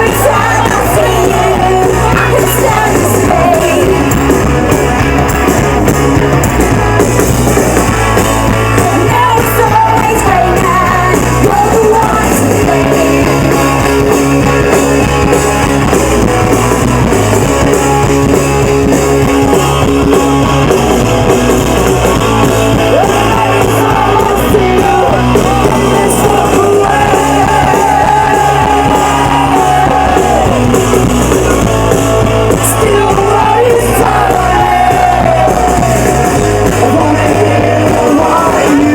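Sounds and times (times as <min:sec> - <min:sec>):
person singing: 0:00.0 - 0:04.4, 0:08.7 - 0:13.8, 0:22.9 - 0:30.7, 0:32.5 - 0:38.9
live rock band playing: 0:00.0 - 0:38.9.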